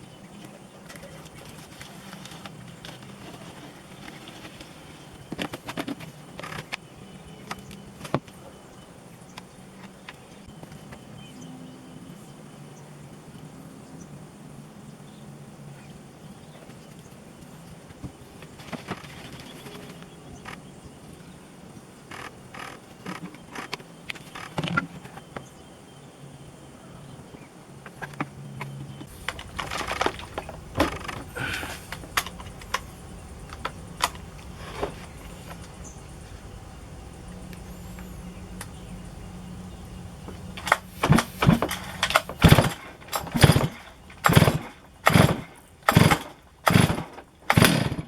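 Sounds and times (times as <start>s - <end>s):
steady low hum: 28.2s - 48.0s
clatter of tools being handled: 29.0s - 35.8s, 40.3s - 48.0s.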